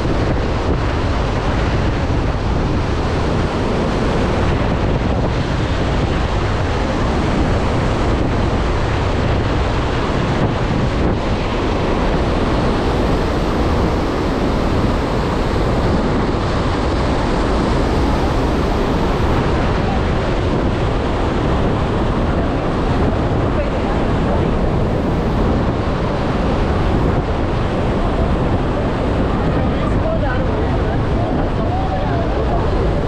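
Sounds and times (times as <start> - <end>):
wind on microphone: 0.0 - 33.0
waterfall rushing: 2.8 - 22.9, 23.6 - 27.7.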